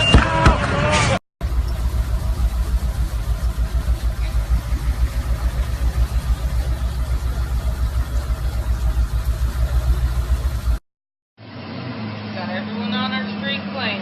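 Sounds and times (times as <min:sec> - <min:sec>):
engine running: 0:01.4 - 0:10.8.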